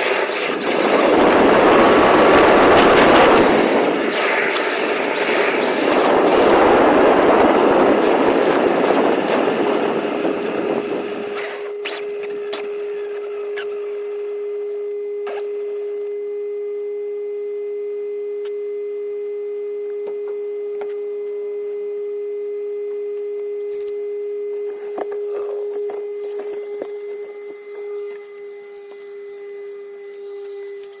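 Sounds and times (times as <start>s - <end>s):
steady electronic tone: 0.0s - 11.8s.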